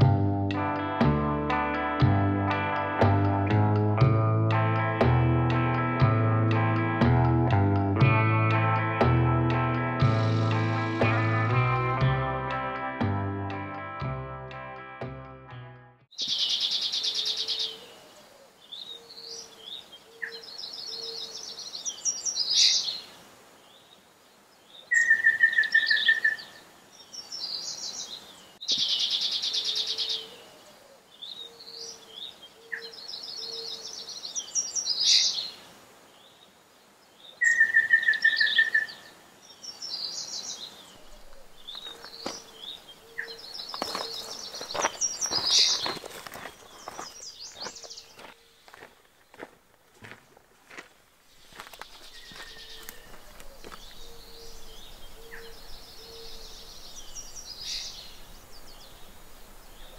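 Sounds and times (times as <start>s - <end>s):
bird trills: 41.0s - 46.0s, 51.8s - 59.9s.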